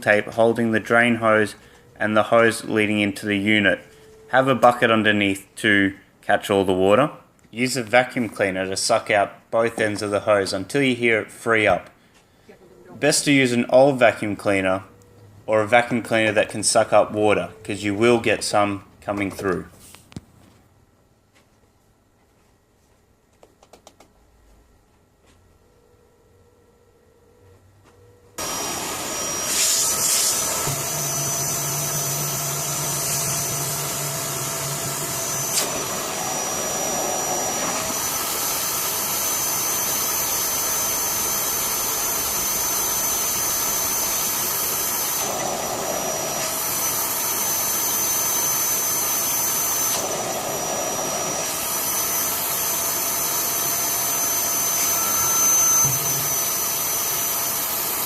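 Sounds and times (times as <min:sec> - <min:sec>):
vacuum cleaner whining: 0:28.3 - 0:58.0.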